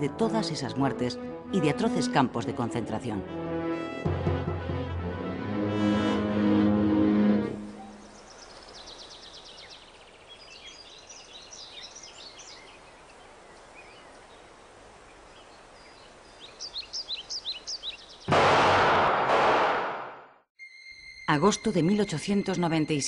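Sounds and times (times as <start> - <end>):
small birds chirping and trilling: 7.8 - 18.3.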